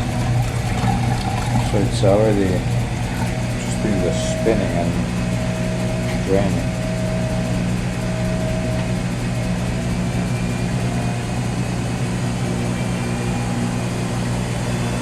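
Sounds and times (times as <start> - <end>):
washing machine draining and spinning: 0.0 - 15.0.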